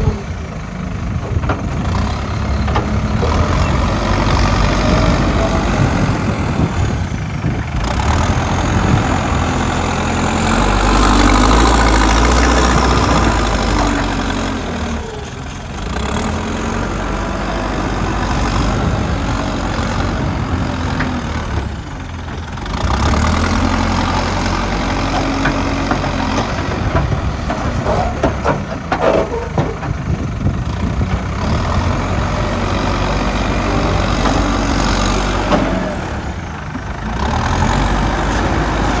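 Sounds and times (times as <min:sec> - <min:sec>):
diesel engine revving: 0:00.0 - 0:39.0
clattering knocks: 0:24.8 - 0:31.3.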